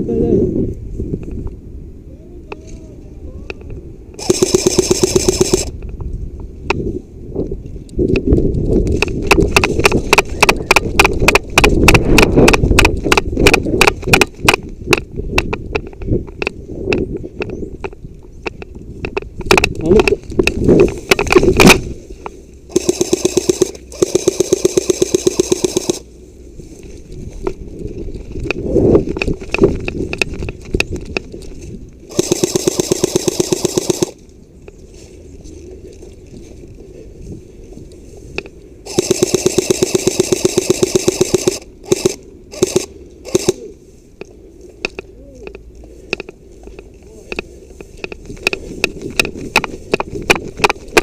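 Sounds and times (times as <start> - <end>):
airsoft rifle firing bursts: 4.2 - 5.7, 22.7 - 26.1, 32.1 - 34.2, 38.9 - 43.6.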